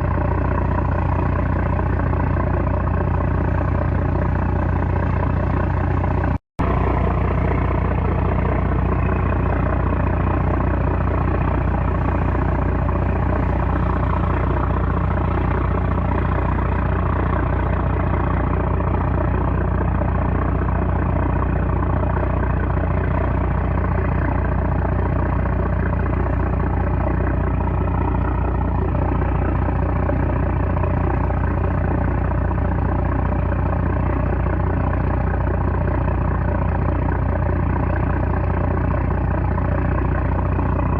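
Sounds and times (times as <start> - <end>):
diesel engine droning: 0.0 - 40.9.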